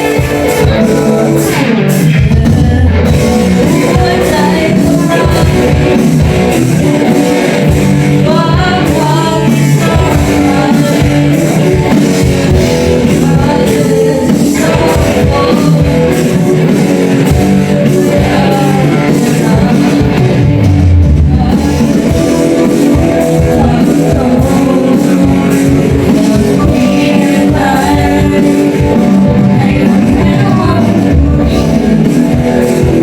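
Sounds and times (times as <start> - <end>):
child singing: 0.0 - 20.5, 21.3 - 33.0
rock band playing: 0.0 - 33.0.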